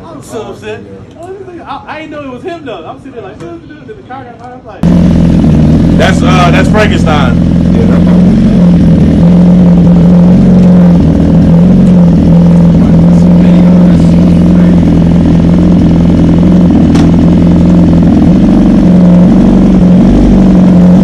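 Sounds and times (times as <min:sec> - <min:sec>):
vehicle engine running: 0:04.8 - 0:21.0.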